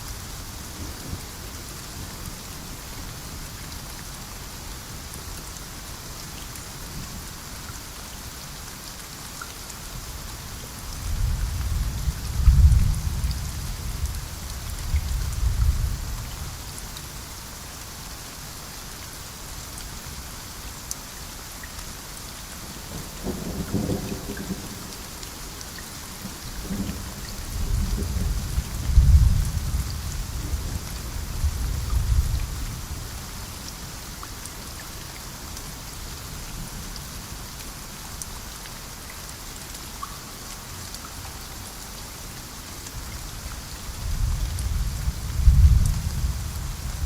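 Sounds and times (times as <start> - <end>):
steady rain: 0.0 - 47.0
rolling thunder: 26.6 - 32.4, 44.0 - 47.0.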